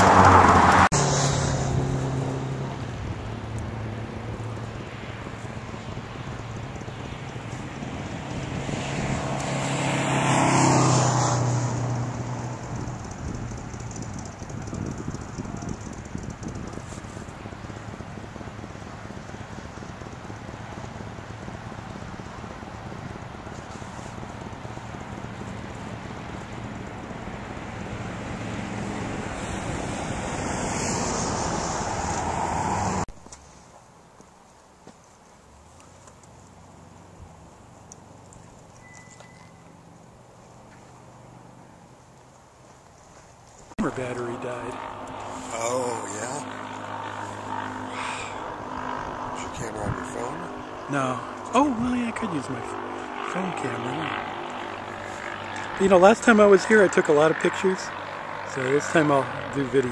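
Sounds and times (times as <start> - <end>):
wind rushing over microphone: 0.0 - 33.1, 43.8 - 55.9
motor vehicle passing by: 0.0 - 33.6, 35.6 - 59.9.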